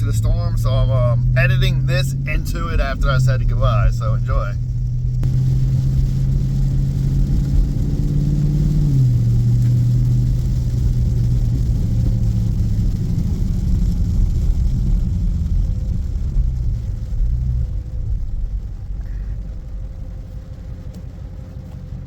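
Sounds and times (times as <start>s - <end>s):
car engine droning: 0.0s - 22.0s
road and tyre rumble: 0.0s - 22.0s.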